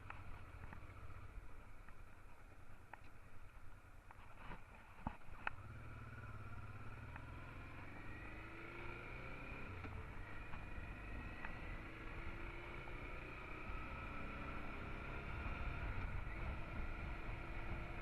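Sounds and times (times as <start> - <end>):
motorcycle engine rumbling: 0.0 - 18.0.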